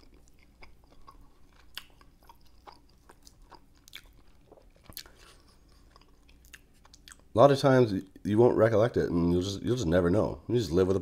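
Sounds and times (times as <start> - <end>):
faint chewing with wet clicks: 0.0 - 7.4.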